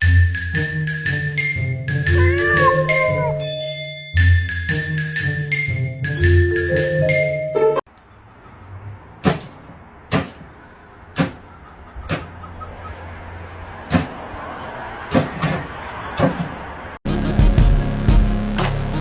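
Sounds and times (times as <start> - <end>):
sharp knocks: 9.2 - 10.6, 11.2 - 12.5, 13.9 - 14.2, 15.1 - 16.6.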